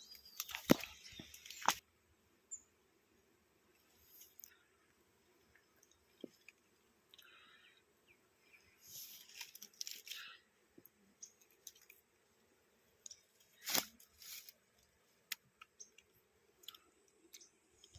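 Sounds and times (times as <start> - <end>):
scratching handling noises: 13.0 - 14.9.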